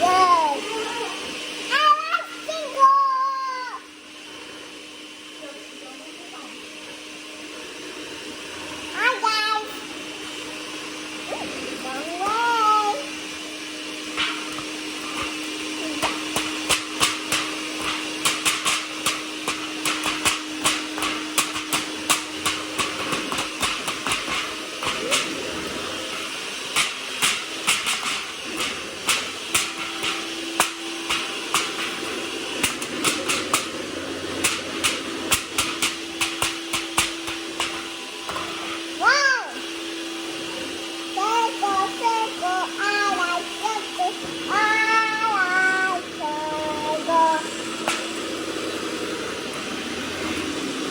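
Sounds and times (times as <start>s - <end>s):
electric mixer humming: 0.0s - 50.9s
beaters clicking against bowl: 16.0s - 25.4s, 26.7s - 33.8s, 34.4s - 37.9s.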